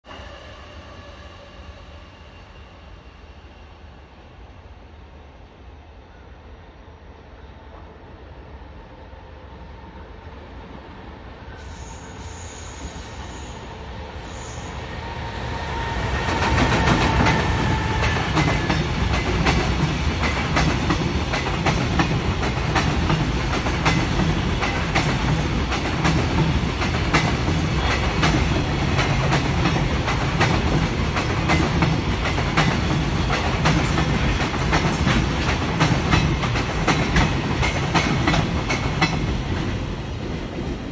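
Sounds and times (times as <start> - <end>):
freight train rumbling past: 0.0 - 40.9.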